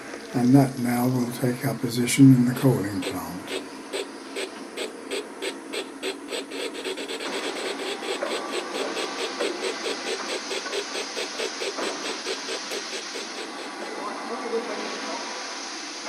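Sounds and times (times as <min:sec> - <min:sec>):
steam hiss: 0:00.0 - 0:16.0
steam locomotive chuffing: 0:01.0 - 0:16.0.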